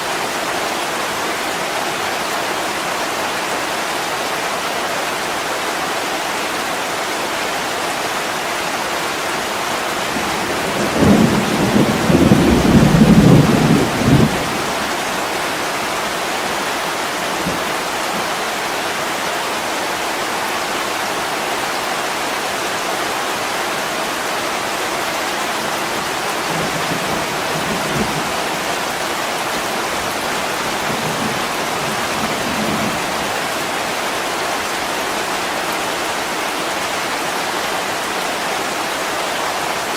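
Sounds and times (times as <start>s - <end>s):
heavy rain on a window: 0.0s - 39.9s
low thunder rumble: 10.7s - 14.9s.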